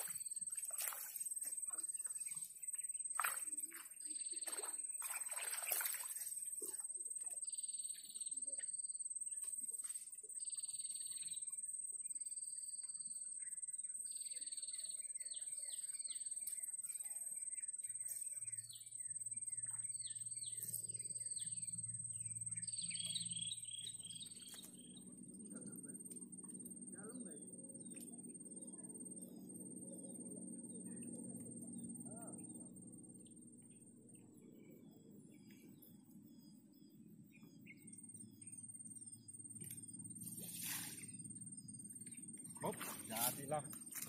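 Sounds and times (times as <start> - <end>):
faint low hum: 0.0 - 44.0
high-pitched insect drone: 0.0 - 44.0.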